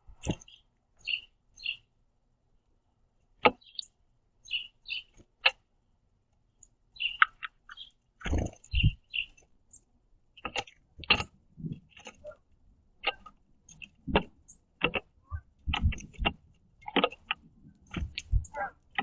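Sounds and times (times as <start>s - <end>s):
birds pecking on wooden feeder: 3.3s - 5.6s, 6.3s - 19.0s.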